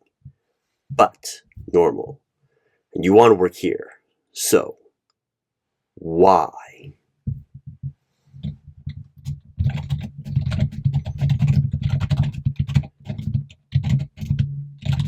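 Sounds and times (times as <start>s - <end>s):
typing on computer keyboard: 8.4s - 15.0s.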